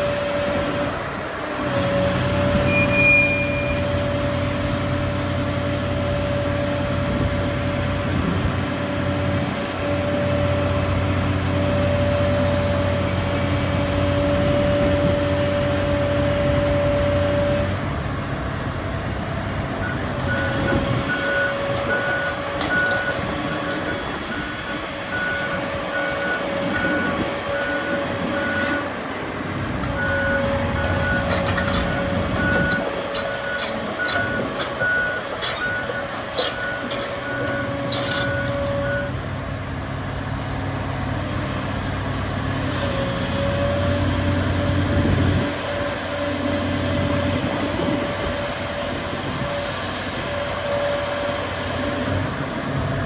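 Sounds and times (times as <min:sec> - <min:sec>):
excavator diesel engine whining: 0:00.0 - 0:53.0
beeping warning alarm: 0:20.2 - 0:29.0, 0:29.8 - 0:39.1.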